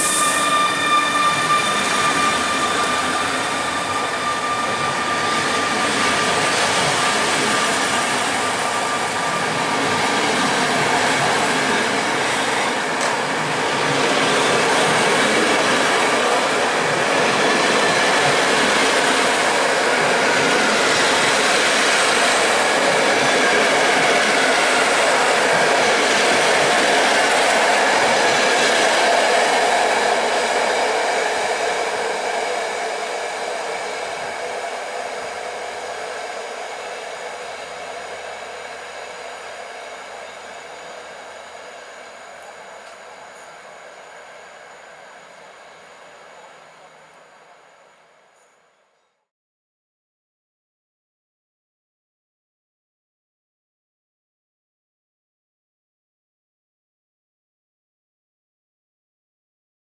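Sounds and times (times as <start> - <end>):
train coaches rolling past: 0.0 - 48.2.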